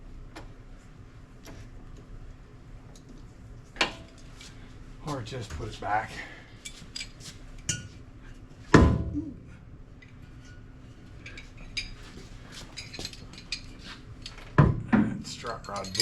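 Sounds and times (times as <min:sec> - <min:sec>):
metal tools clinking: 0:12.6 - 0:14.4, 0:15.3 - 0:16.0.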